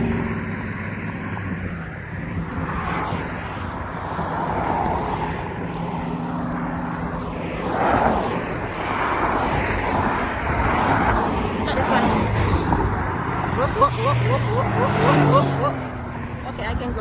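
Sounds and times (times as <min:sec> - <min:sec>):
cars driving past: 0:00.0 - 0:17.0.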